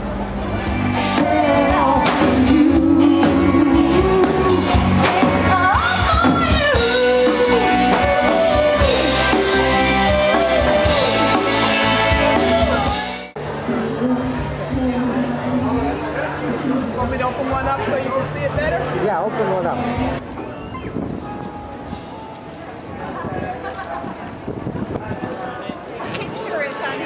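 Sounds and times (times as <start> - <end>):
rock band music: 0.0 - 15.7
lead singer: 0.1 - 17.6.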